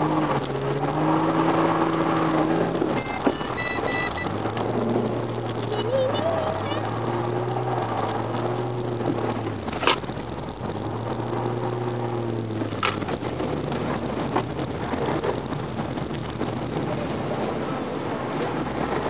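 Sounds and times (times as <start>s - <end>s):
car engine from inside cabin: 0.0s - 14.4s.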